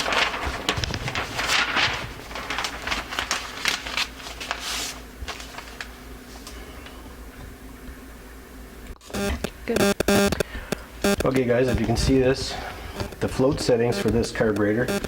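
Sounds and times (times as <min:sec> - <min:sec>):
rustling of parts and paper: 0:00.0 - 0:07.0
low steady hum: 0:00.0 - 0:15.0.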